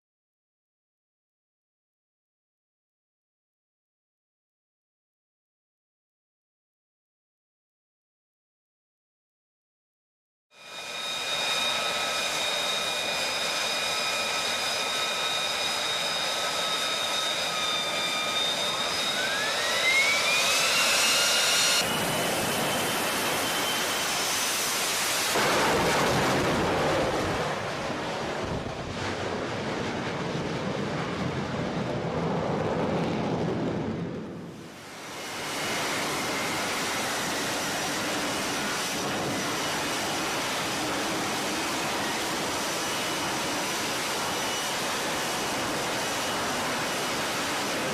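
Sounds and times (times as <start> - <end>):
jet engine whine and roar: 10.5 - 47.9.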